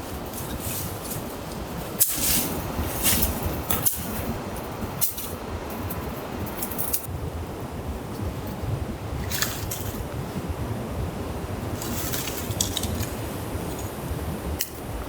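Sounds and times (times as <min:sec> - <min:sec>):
sharp crackles and clicks: 0:11.8 - 0:15.0.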